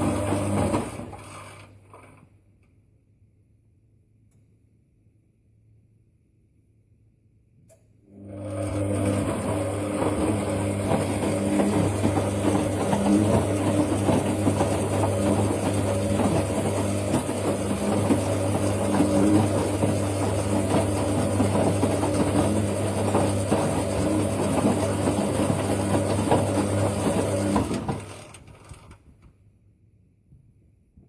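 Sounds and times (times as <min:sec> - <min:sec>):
washing machine motor hum: 0:00.0 - 0:02.2, 0:08.0 - 0:28.8.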